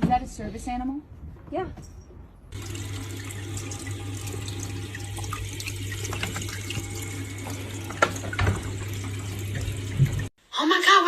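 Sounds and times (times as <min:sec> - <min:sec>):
tap water running into sink: 0:02.6 - 0:10.3.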